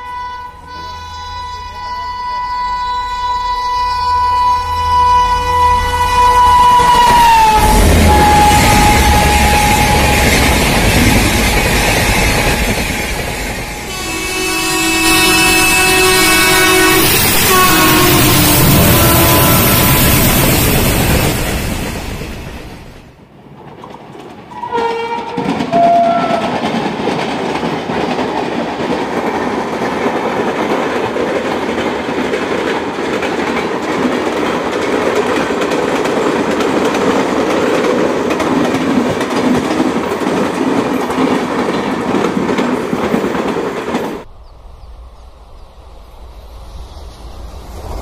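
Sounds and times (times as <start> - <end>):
locomotive horn: 0.0 - 20.6, 24.5 - 26.6
train wheels on rails: 0.0 - 48.0.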